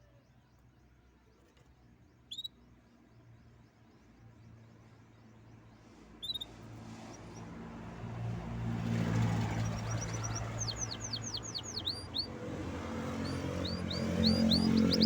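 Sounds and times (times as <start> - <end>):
canary singing: 2.3 - 2.6, 6.2 - 6.6, 9.2 - 15.0.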